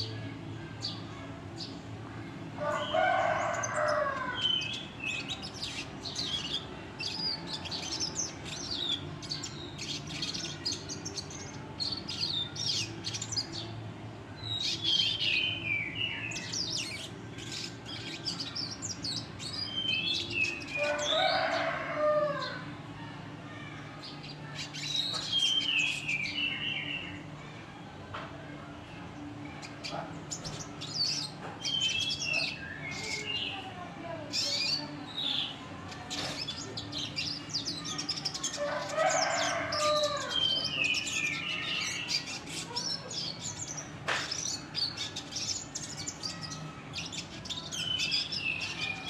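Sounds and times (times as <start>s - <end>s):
bird singing twittering song: 14.4s - 21.8s, 24.3s - 27.2s.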